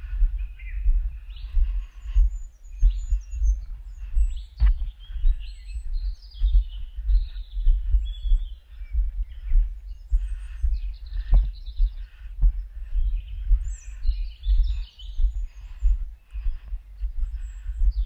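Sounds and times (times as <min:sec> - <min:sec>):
small birds chirping: 0:00.0 - 0:18.0
footsteps walking: 0:03.6 - 0:06.9.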